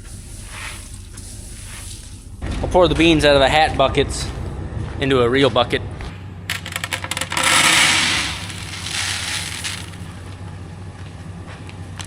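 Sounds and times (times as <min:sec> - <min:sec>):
beans pouring into a bucket: 0:06.5 - 0:10.2.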